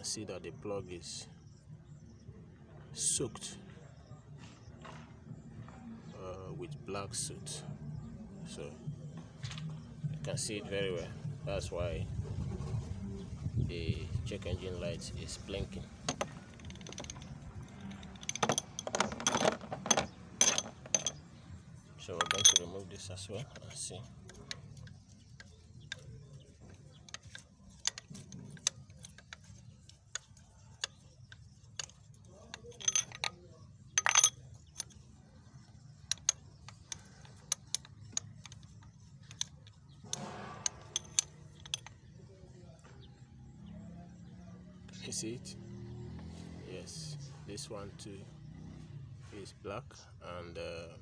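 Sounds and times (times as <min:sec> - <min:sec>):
metal hand tools clinking: 0:15.3 - 0:42.2.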